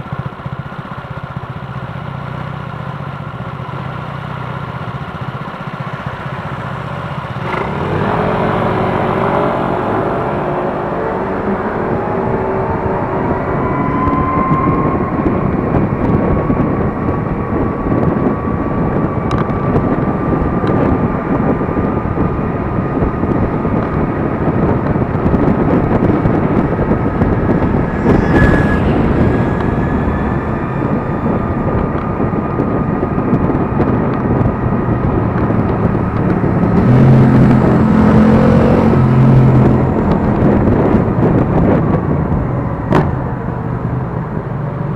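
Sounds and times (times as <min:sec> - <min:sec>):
low engine hum: 0:00.0 - 0:44.9
wind and road rush: 0:00.0 - 0:44.9
electric motor whine: 0:25.3 - 0:34.5.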